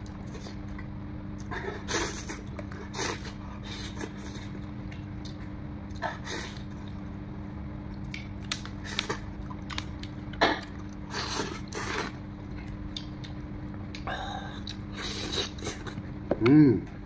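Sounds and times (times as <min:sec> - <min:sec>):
man chewing meat: 0:00.0 - 0:16.3
steady low hum: 0:00.0 - 0:17.0
lip-smacking: 0:12.6 - 0:16.6.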